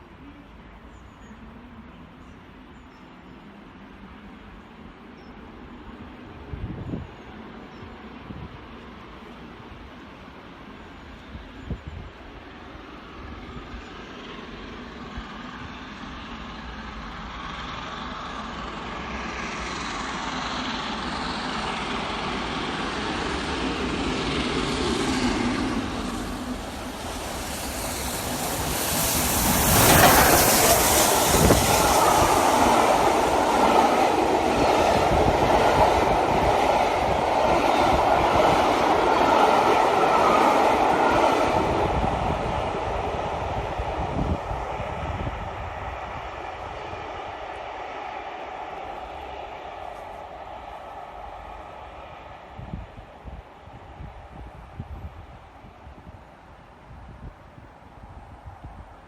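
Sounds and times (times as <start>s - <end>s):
steam locomotive passing: 0.0s - 59.0s
train wheels rumbling on rails: 5.9s - 59.0s.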